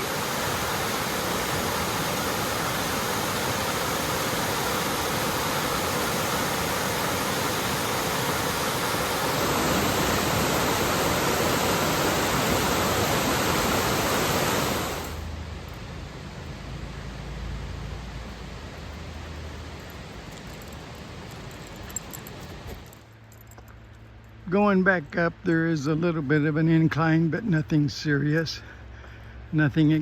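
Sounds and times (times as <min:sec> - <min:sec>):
small waterfall rushing: 0:00.0 - 0:15.4.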